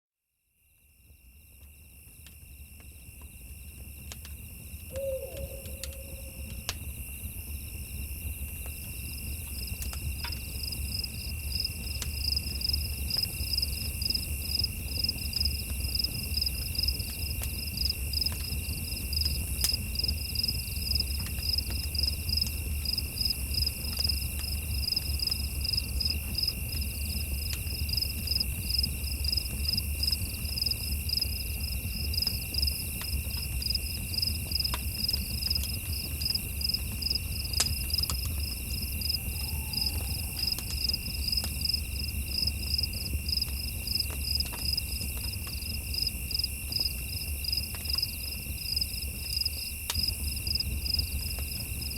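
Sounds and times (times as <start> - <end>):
crickets chirping: 0.6 - 51.9
faint crackles: 23.8 - 48.5.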